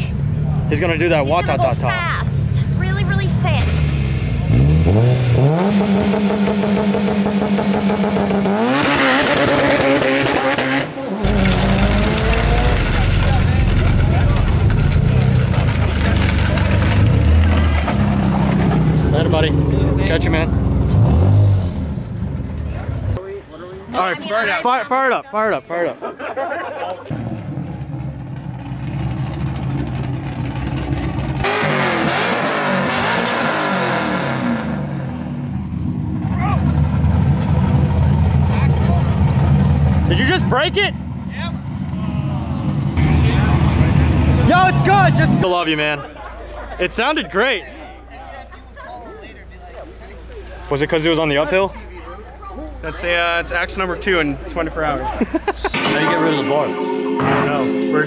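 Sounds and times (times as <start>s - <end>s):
car engine revving and accelerating: 2.9s - 22.4s, 28.6s - 40.7s, 41.6s - 45.5s
loud rushing noise: 55.8s - 58.0s.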